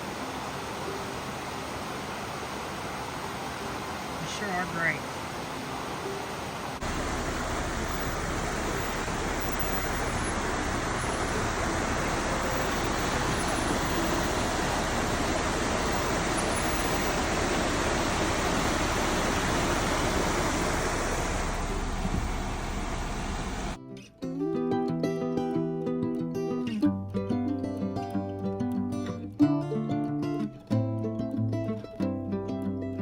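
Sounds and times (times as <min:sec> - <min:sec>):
steady rushing noise: 0:00.0 - 0:23.8.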